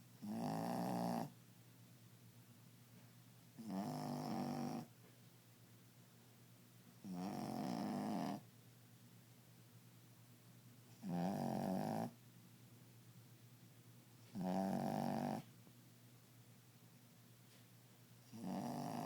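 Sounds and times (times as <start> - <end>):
dog snoring loudly: 0.2 - 1.3, 3.6 - 4.9, 7.0 - 8.4, 11.0 - 12.2, 14.3 - 15.5, 18.3 - 19.0.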